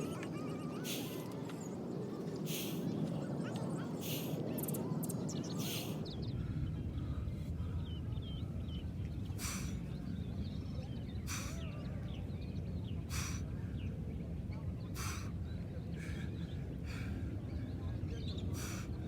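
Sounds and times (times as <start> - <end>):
small birds chirping: 0.0 - 19.0
short sharp breathy hisses: 0.9 - 1.2, 2.5 - 2.9, 4.0 - 4.4, 5.6 - 6.0, 9.4 - 9.8, 11.3 - 11.7, 13.1 - 13.4, 15.0 - 15.3, 18.5 - 19.0.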